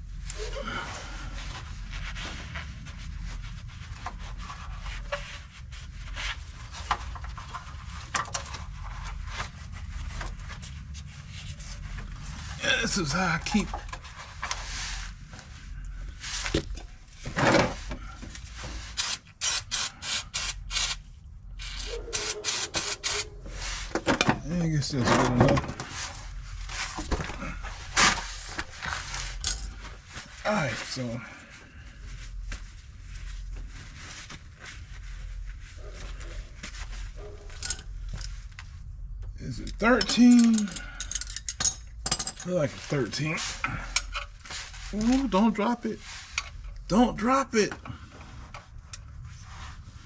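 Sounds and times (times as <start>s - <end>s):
steady low rumble: 0.0s - 17.2s
rubbing and scrubbing: 1.4s - 12.6s, 21.6s - 23.9s.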